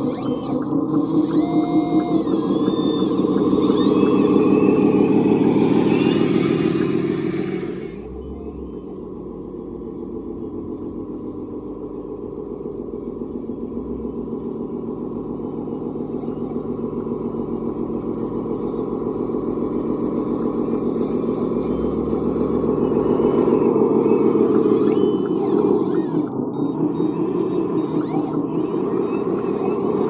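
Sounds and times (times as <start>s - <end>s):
radio-controlled vehicle running: 0.0s - 30.0s.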